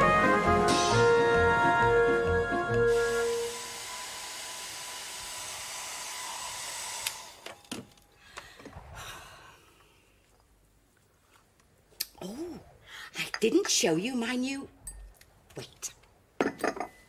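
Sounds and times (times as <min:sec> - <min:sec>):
hair dryer running: 0:02.7 - 0:07.4.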